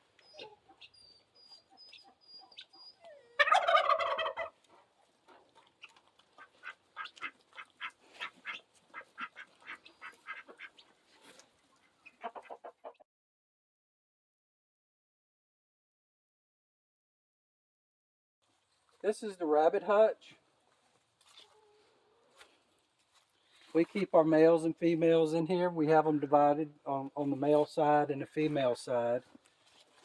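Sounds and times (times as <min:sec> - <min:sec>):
birds clucking and clicking: 0:00.1 - 0:13.0
turkey gobbling: 0:00.3 - 0:11.0, 0:11.7 - 0:13.0.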